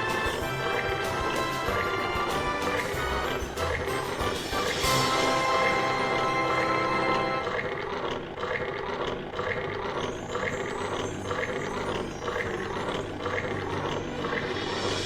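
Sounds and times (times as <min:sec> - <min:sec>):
background music: 0:00.0 - 0:07.7, 0:11.0 - 0:15.0
train chugging: 0:00.0 - 0:15.0.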